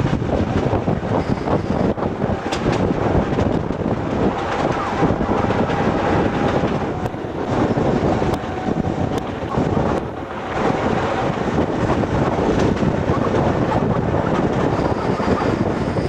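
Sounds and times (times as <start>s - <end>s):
train running gear rumble: 0.0s - 16.0s
wind buffeting microphone: 0.0s - 16.0s.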